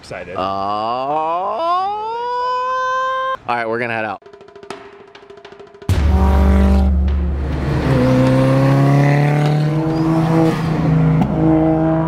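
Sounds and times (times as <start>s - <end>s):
car engine accelerating: 6.2s - 12.0s.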